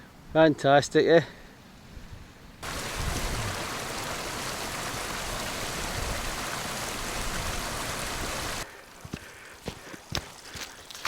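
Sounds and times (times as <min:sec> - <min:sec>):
running water rushing: 0:02.6 - 0:11.0.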